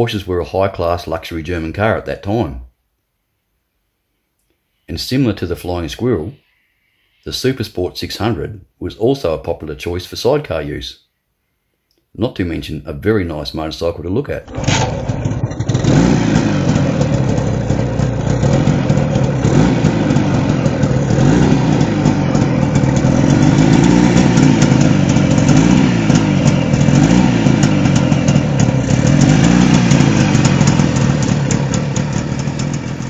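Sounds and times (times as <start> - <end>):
two-stroke engine revving: 14.5 - 33.0.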